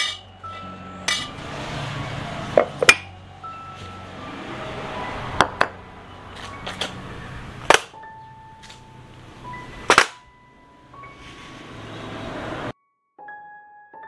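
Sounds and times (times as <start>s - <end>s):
sharp metallic knocks: 0.0s - 1.6s.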